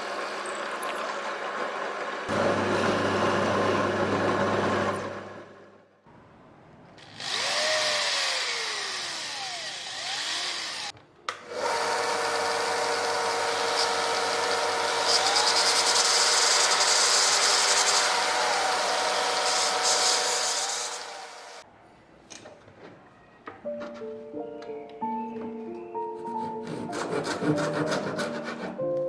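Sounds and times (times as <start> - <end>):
power tool running on wood: 1.1 - 5.4, 7.0 - 21.6.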